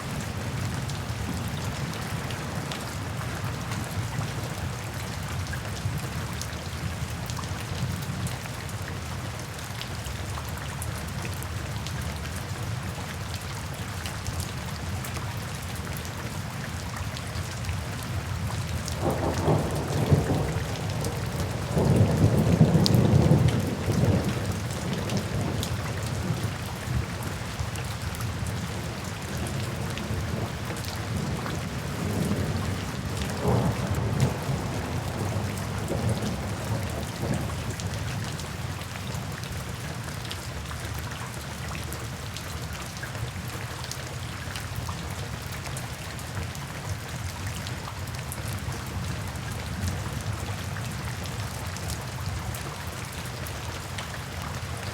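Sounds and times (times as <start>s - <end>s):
steady rain: 0.0s - 54.9s
thunder rumble: 19.0s - 26.3s, 31.1s - 37.7s.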